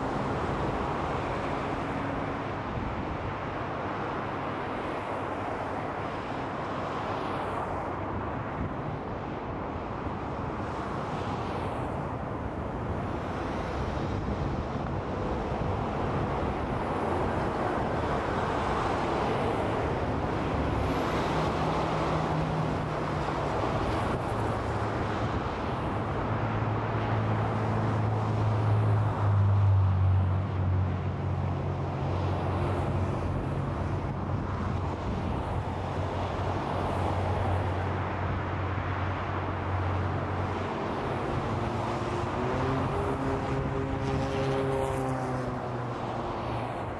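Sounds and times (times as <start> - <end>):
freeway traffic rushing: 0.0 - 46.9
heavy vehicle engine drone: 12.2 - 46.9.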